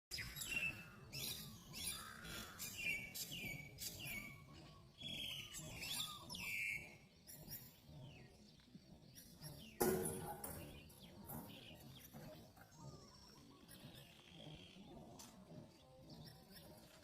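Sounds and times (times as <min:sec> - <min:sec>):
bird chirping: 0:00.1 - 0:17.0.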